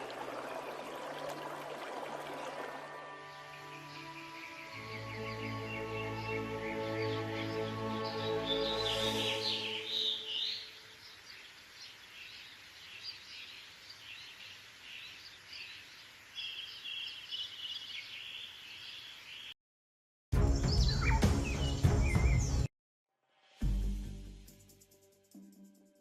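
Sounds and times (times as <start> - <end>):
music: 2.5 - 10.2, 20.4 - 26.0
birds chirping and calling: 3.4 - 19.5, 20.6 - 22.6.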